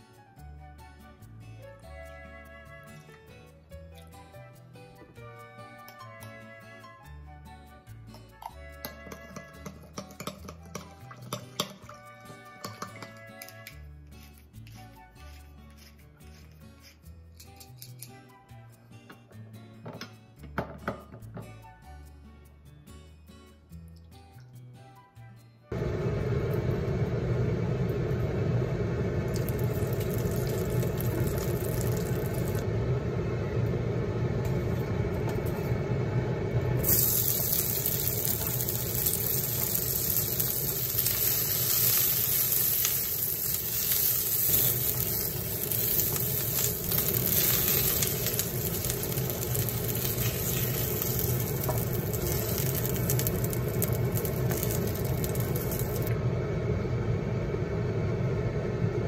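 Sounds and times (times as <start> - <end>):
steady low hum: 25.7 - 59.0
onion sizzling in hot oil: 29.2 - 32.7, 36.6 - 56.2.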